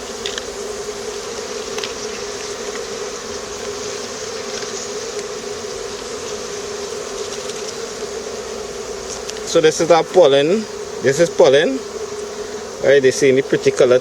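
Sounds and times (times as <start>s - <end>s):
honeybees buzzing: 0.0s - 14.0s
faint ticks: 1.7s - 2.9s, 9.1s - 9.5s.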